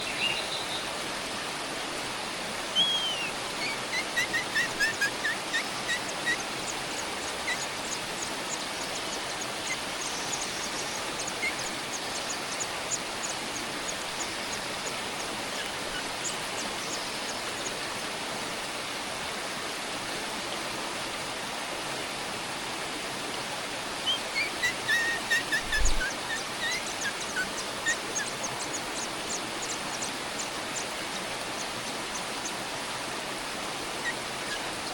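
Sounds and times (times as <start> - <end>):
faint high ticking chirps: 2.8 - 17.8, 24.1 - 32.6.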